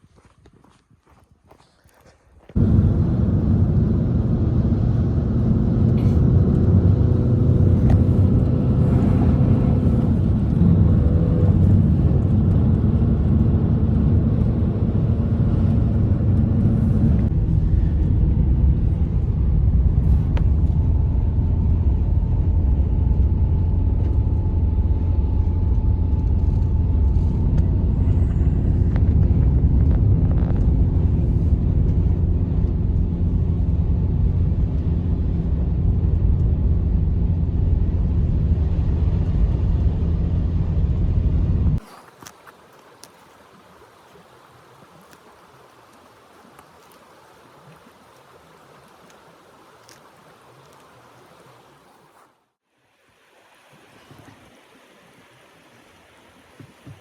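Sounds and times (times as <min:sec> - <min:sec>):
blizzard wind roaring: 0:02.6 - 0:42.0.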